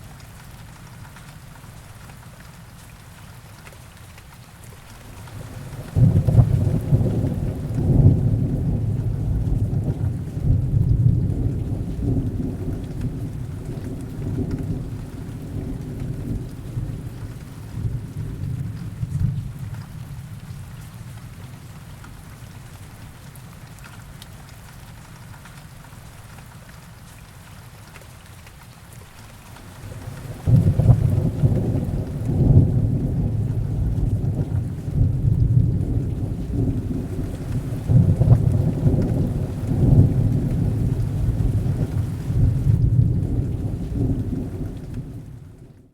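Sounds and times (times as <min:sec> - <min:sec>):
heavy rain falling: 0:00.0 - 0:45.9
thunder rumbling: 0:05.2 - 0:20.7, 0:29.8 - 0:45.7.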